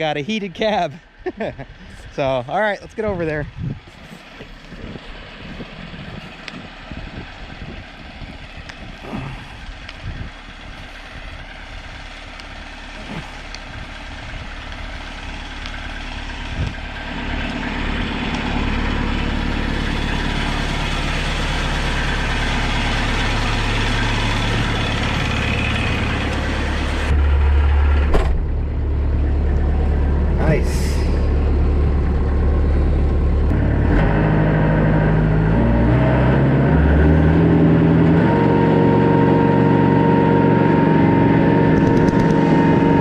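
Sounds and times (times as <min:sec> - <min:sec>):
tractor diesel engine idling: 0:04.2 - 0:33.8.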